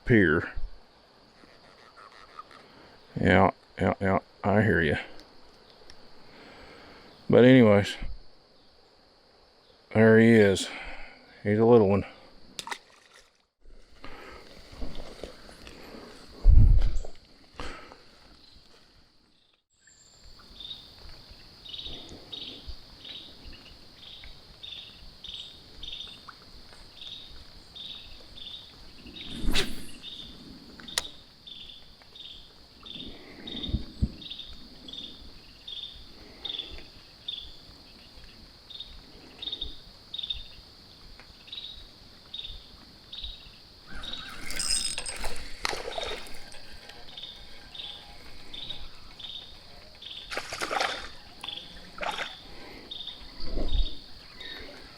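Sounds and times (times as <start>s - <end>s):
insect chirps: 0.0s - 54.9s
insects droning: 0.0s - 54.9s
handling rustling: 44.3s - 46.8s.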